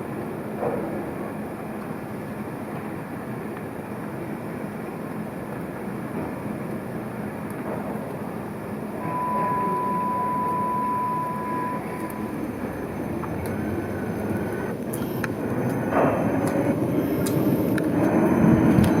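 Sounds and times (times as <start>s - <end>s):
tram rumbling along street: 0.0s - 19.0s
steady high tone: 9.0s - 14.7s.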